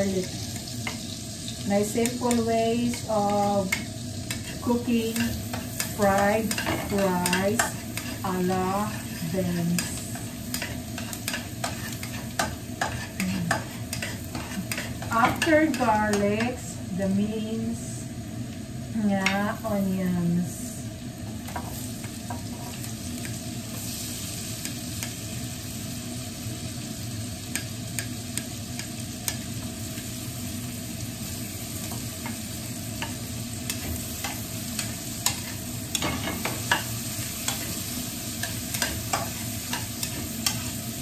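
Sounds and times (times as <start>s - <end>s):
onion sizzling in a frying pan: 0.0s - 41.0s
utensils scraping a pan: 4.3s - 15.9s.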